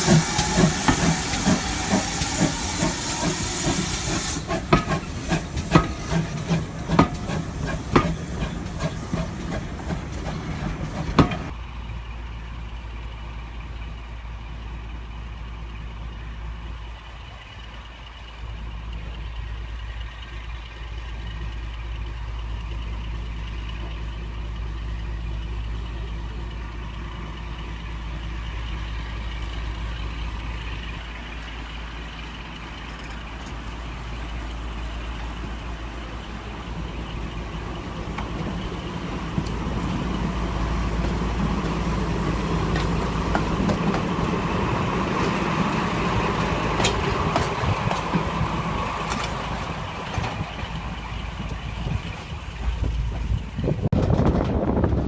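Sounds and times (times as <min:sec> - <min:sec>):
steam locomotive hissing: 0:00.0 - 0:11.5, 0:31.1 - 0:53.5
metal clanks and knocks: 0:04.5 - 0:11.5.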